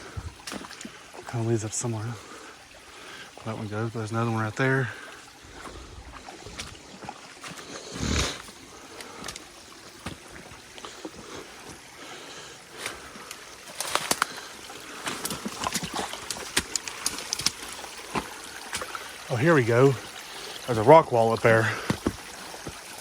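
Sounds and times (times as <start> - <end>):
stream trickling: 0.0 - 23.0
footsteps crunching: 5.4 - 11.8, 13.6 - 19.0
brush crackling: 12.7 - 19.4.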